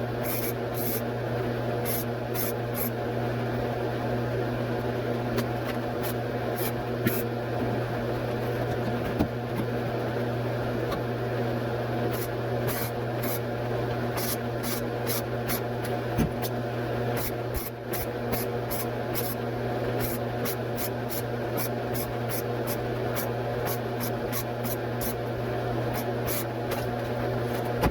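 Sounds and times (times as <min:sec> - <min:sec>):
steady mechanical hum: 0:00.0 - 0:27.9.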